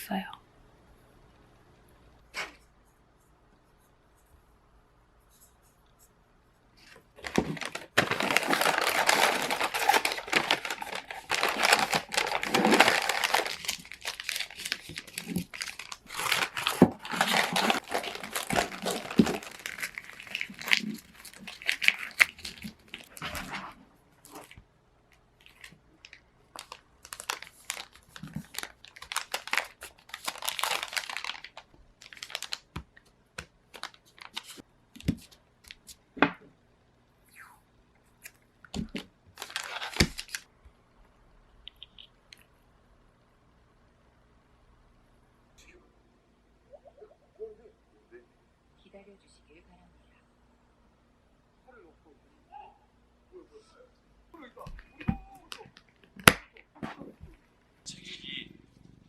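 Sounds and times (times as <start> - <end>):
wrapping material crinkling: 6.8 - 23.6, 25.4 - 32.8, 33.7 - 36.0, 38.8 - 40.5.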